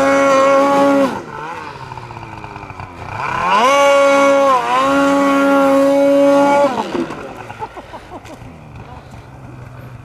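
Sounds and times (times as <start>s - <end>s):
snowmobile engine revving: 0.0s - 10.0s.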